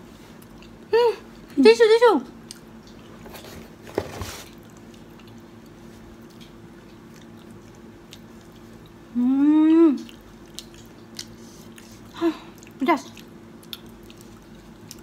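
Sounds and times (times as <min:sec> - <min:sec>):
steady low hum: 0:00.0 - 0:15.0
people chewing: 0:00.1 - 0:00.9, 0:02.4 - 0:03.8, 0:04.4 - 0:15.0
woman humming: 0:09.1 - 0:10.1.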